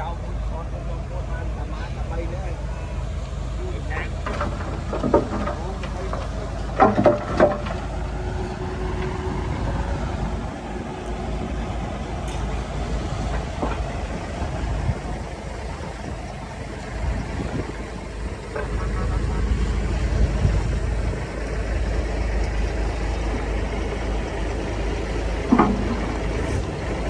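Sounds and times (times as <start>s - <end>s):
diesel machinery rumbling: 0.0s - 27.0s
metallic clanks: 4.2s - 9.3s, 25.3s - 27.0s.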